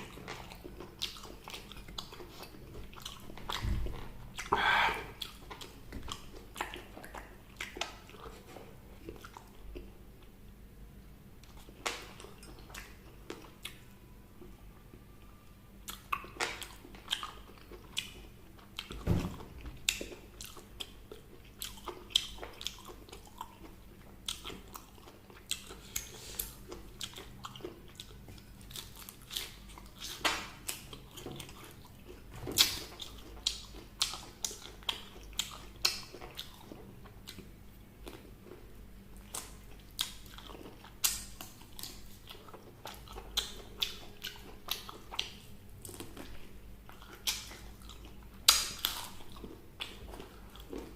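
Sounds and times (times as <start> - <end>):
person chewing crunchy food: 0.0 - 10.4, 11.4 - 50.9.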